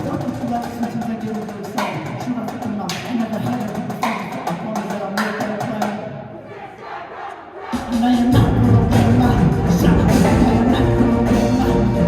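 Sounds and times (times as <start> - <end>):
group of voices shouting: 6.4 - 8.0.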